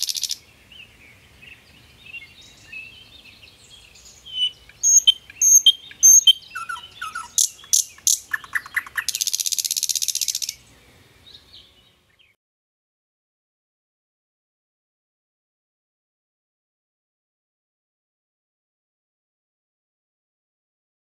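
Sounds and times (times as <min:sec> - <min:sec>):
songbirds singing: 0:00.0 - 0:12.4.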